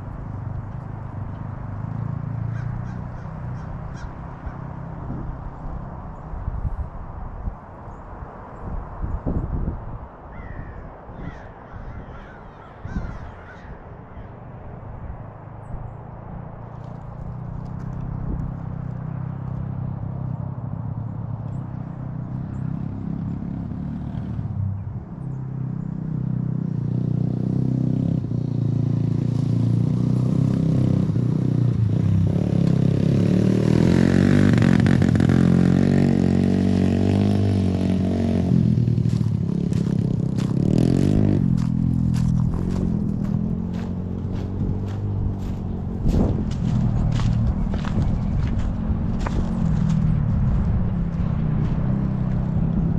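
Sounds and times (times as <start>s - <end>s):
dirt bike engine revving: 26.8s - 52.9s.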